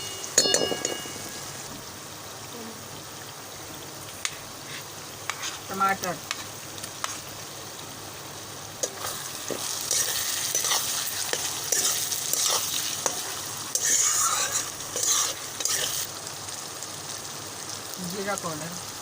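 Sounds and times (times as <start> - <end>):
spoon tapping against a pan: 0.0 - 1.4
tomatoes sizzling in hot oil: 0.0 - 19.0
spoon scraping a pan: 4.2 - 7.3, 8.8 - 16.1.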